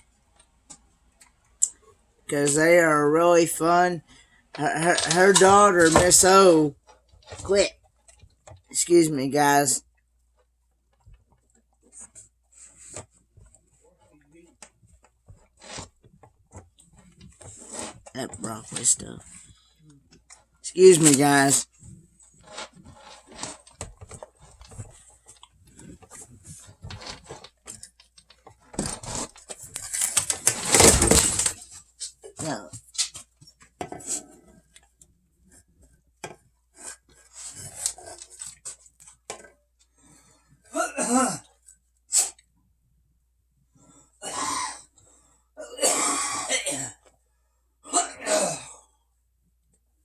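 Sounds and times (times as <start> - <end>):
faint irregular clicks and knocks: 0.0 - 2.6, 6.2 - 8.8, 9.8 - 20.6, 21.7 - 30.4, 31.5 - 40.7
man coughing: 45.6 - 47.0.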